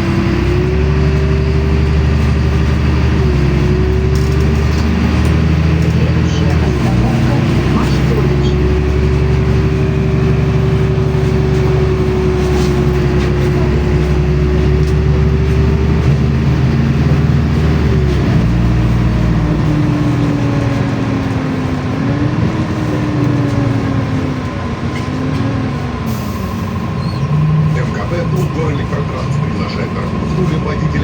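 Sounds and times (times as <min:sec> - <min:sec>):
bus engine drone: 0:00.0 - 0:31.0
bus whine: 0:00.0 - 0:31.0.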